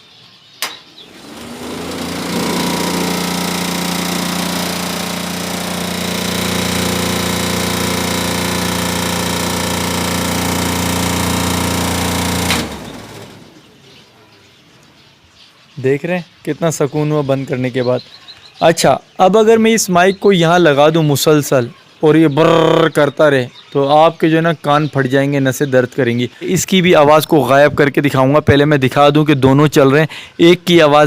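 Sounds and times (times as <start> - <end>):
air cooler buzzing drone: 0.6 - 13.8.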